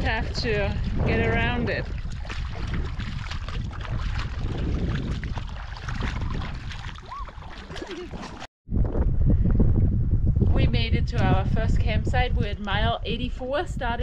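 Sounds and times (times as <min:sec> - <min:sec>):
water splashing around canoe: 0:00.0 - 0:08.5
wind buffeting microphone: 0:00.0 - 0:14.0.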